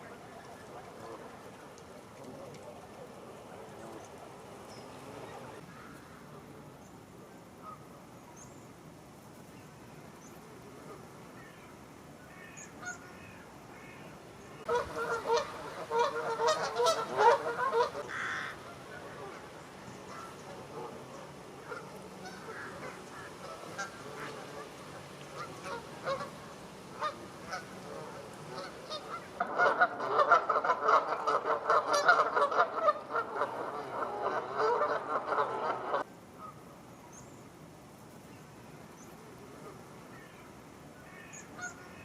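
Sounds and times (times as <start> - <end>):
faint bird calls: 9.6 - 37.5, 38.3 - 42.0
geese honking: 14.6 - 36.1.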